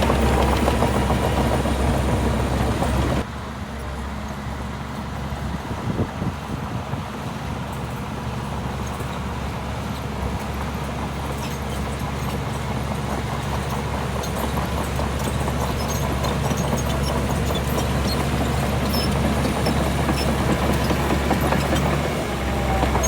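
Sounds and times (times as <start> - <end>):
heavy diesel engine running: 0.0 - 23.0.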